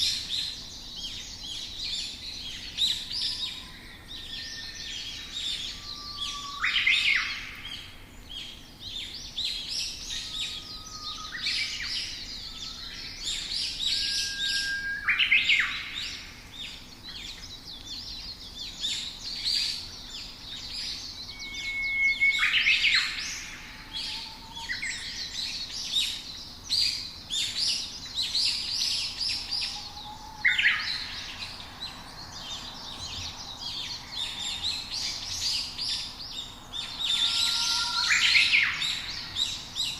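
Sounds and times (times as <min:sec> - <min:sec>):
songbirds chirping: 0:00.0 - 0:39.9
short whistled bird notes: 0:21.3 - 0:23.2.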